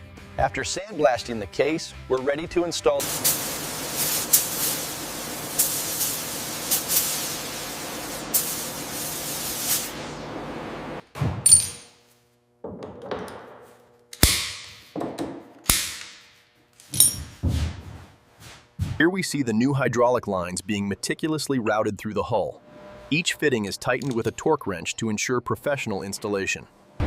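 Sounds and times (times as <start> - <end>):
compressed air blast hissing: 3.0 - 10.2.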